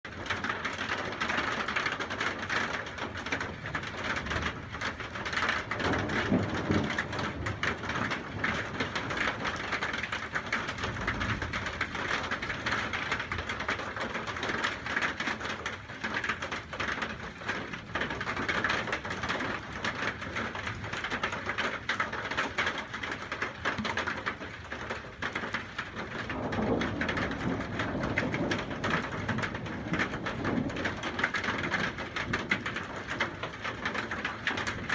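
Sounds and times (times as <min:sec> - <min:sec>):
heavy rain pattering: 0:00.1 - 0:34.9
low rumbles of thunder: 0:02.2 - 0:15.2, 0:26.0 - 0:34.9.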